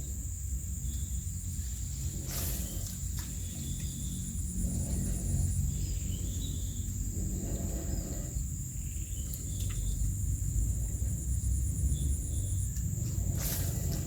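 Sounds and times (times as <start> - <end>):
crickets chirping: 0.0 - 14.0
low rumble: 0.8 - 14.0.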